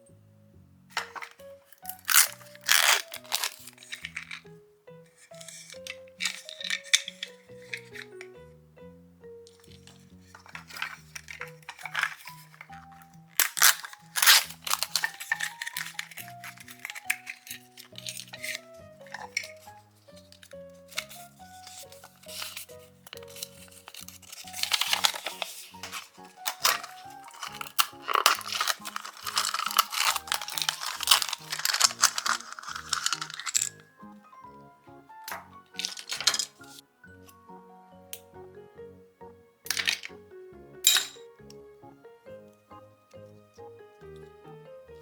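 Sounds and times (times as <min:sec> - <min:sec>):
background music: 0:00.0 - 0:45.0
packaging crinkling and rustling: 0:00.9 - 0:04.5, 0:05.2 - 0:08.3, 0:09.5 - 0:33.9, 0:35.3 - 0:36.8, 0:39.7 - 0:40.2
toy pieces clicking and rattling: 0:00.9 - 0:04.5, 0:05.1 - 0:08.3, 0:09.5 - 0:33.8, 0:35.3 - 0:36.8, 0:39.7 - 0:40.2.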